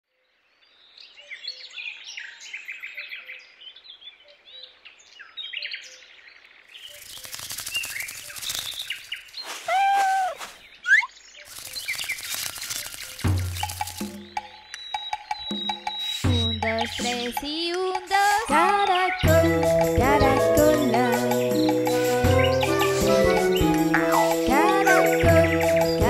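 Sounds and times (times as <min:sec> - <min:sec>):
small birds chirping: 0:00.4 - 0:26.0
rapid wing fluttering: 0:06.8 - 0:10.6, 0:11.5 - 0:14.4
held whistled bird call: 0:09.4 - 0:12.3, 0:14.7 - 0:17.1.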